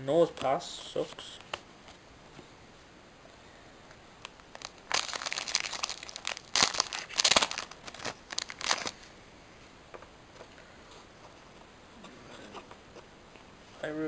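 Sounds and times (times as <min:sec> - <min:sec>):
foil wrapper crinkling: 0:04.4 - 0:09.0.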